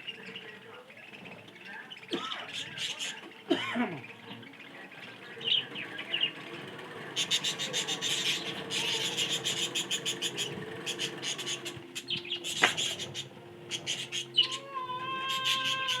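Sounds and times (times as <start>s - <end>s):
budgerigars chattering: 0.0s - 16.0s
sharp loud bird call: 7.2s - 16.0s.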